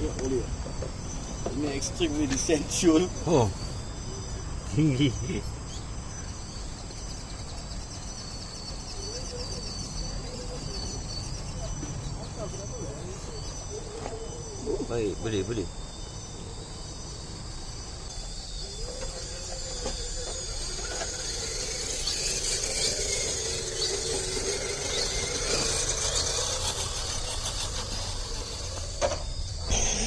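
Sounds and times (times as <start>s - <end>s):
toy car electric motor whining: 0.0s - 5.5s, 6.2s - 30.0s.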